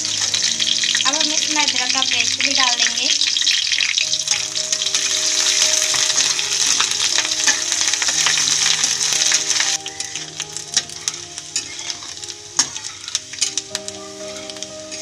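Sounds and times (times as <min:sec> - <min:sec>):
paste sizzling in hot oil: 0:00.0 - 0:15.0
metal spatula stirring: 0:03.4 - 0:15.0.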